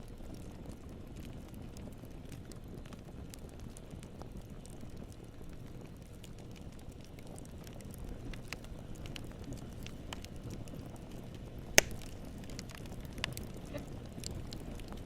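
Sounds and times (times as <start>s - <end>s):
fire crackling: 0.0s - 15.0s
flames rumbling: 0.0s - 15.0s
loud fire pop: 11.8s - 12.2s.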